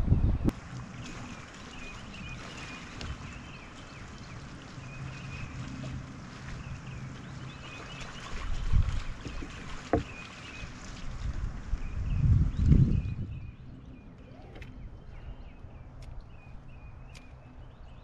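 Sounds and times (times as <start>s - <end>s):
wind gusting on microphone: 0.0s - 0.6s, 8.2s - 10.0s, 10.7s - 17.0s
water lapping against hull: 0.4s - 18.0s.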